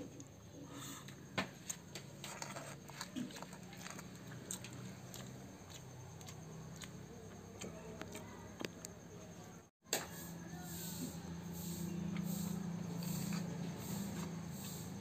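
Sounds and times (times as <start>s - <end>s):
person chewing: 2.8s - 8.2s.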